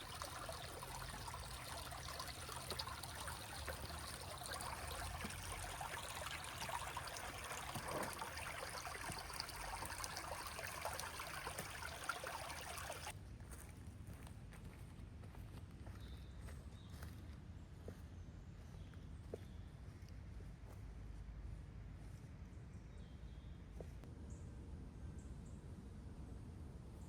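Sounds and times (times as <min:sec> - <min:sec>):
river water rushing: 0:00.0 - 0:13.1.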